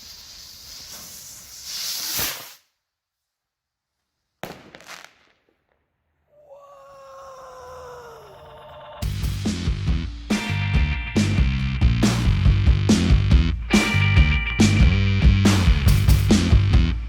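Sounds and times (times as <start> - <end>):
firework bang with crackle: 0.0 - 2.6, 4.4 - 5.6
firework rocket hissing whoosh: 0.0 - 2.7.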